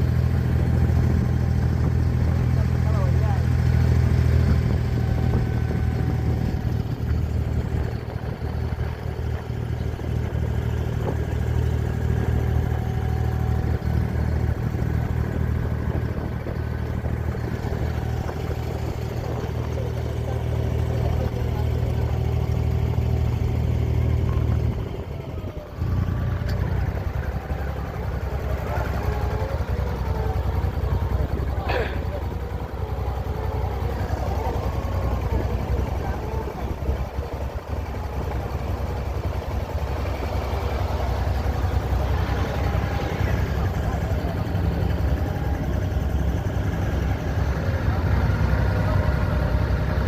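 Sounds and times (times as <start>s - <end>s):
boat engine humming: 0.0s - 50.0s.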